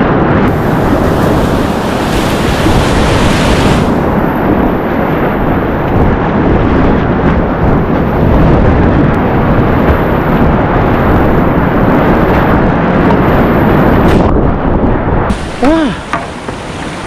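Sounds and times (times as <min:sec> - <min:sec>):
river water rushing: 0:00.5 - 0:04.2, 0:15.3 - 0:17.0.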